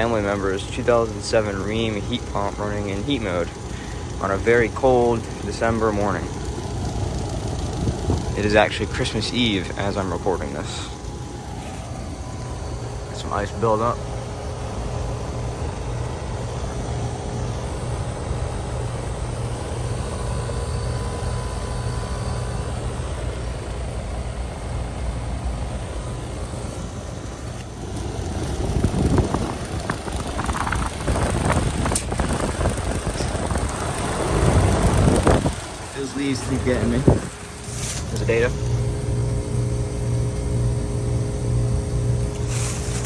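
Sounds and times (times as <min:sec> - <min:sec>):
heat pump humming: 0:00.0 - 0:43.0
dry leaves rustling and crunching: 0:37.2 - 0:38.2, 0:42.4 - 0:43.0.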